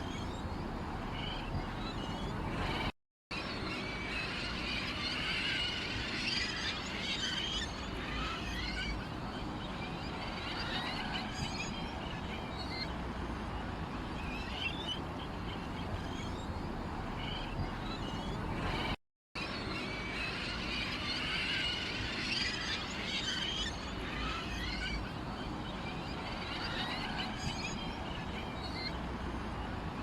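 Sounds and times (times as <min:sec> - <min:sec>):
small birds chirping: 0:00.0 - 0:02.9, 0:06.3 - 0:19.0.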